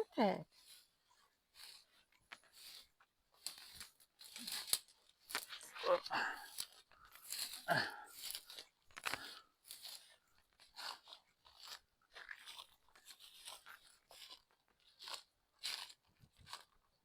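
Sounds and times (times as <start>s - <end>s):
footsteps crunching through dry grass: 0.5s - 16.7s.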